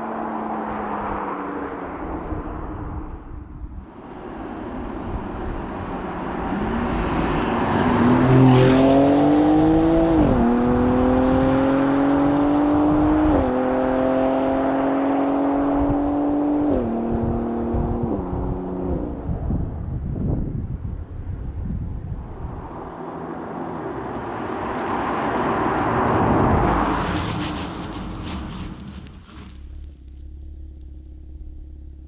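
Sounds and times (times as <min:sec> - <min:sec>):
car engine accelerating hard: 0:04.6 - 0:19.5.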